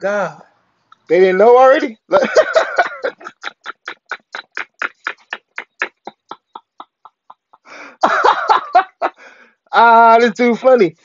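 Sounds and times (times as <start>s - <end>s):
man laughing: 1.9s - 9.4s.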